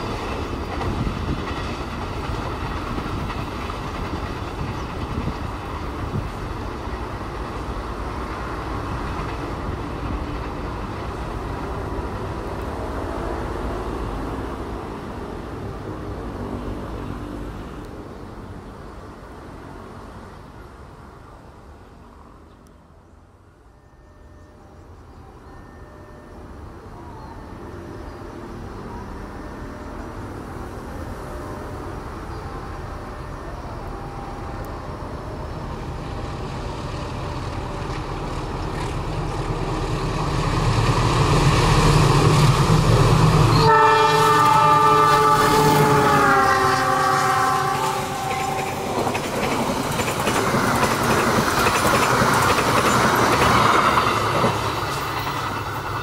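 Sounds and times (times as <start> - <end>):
diesel locomotive engine: 0.0 - 56.0
train horn: 43.4 - 49.2.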